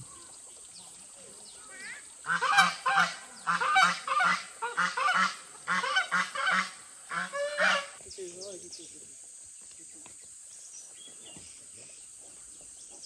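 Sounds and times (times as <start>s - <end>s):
geese honking: 1.7s - 8.0s.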